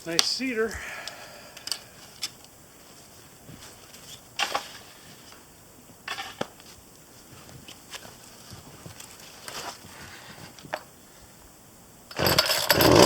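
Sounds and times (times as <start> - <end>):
brush crunching rustles: 1.9 - 5.5, 6.5 - 10.4.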